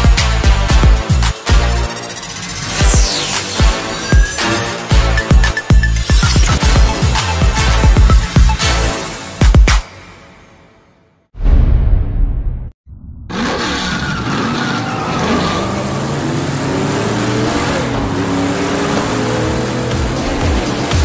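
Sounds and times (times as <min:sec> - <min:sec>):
loud hit: 0:11.4 - 0:13.8
racing car engine sound effect: 0:13.3 - 0:21.0.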